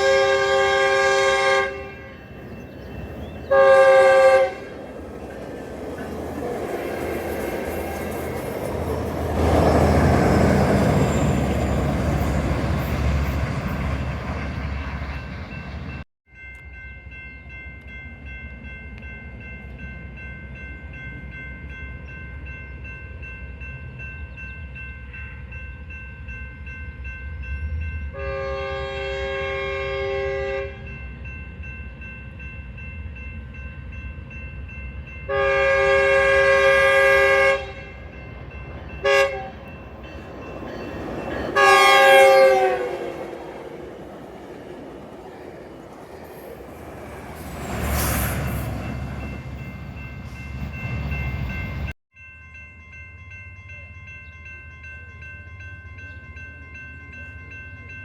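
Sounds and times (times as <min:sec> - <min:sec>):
locomotive air horn blasts: 0:00.0 - 0:02.3, 0:03.5 - 0:04.8, 0:28.1 - 0:30.9, 0:35.3 - 0:38.0, 0:39.0 - 0:39.8, 0:41.5 - 0:43.4
train passing: 0:00.0 - 0:52.0.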